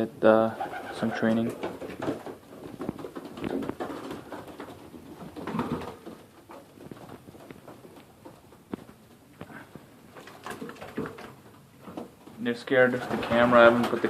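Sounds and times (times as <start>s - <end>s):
pigeons cooing: 0.5s - 7.0s.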